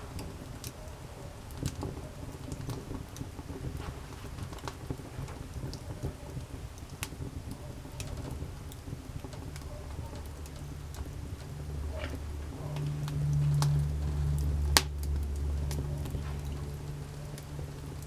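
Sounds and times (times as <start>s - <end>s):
campfire crackling and popping: 0.0s - 18.0s
steady low rumble: 8.4s - 18.0s.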